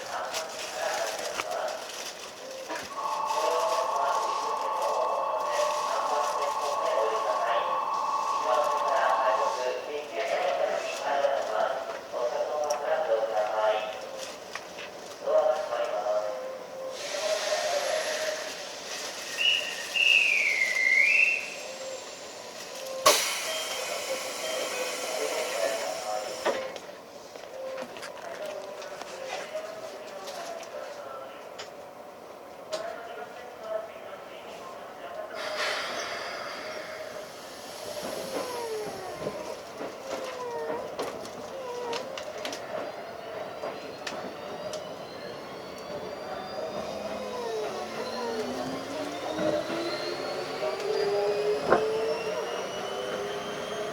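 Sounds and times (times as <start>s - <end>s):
electric train motor whine: 2.8s - 10.5s, 36.1s - 53.9s
air hissing: 2.9s - 9.9s, 16.9s - 26.6s, 35.4s - 39.6s
train whistle: 2.9s - 9.9s, 19.2s - 26.6s.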